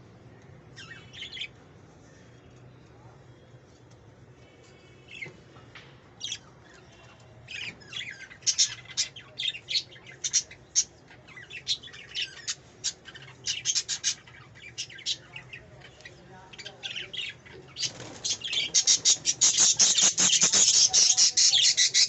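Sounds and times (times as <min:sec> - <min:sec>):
parrot squawking and chirping: 0:07.6 - 0:15.2, 0:17.7 - 0:22.0.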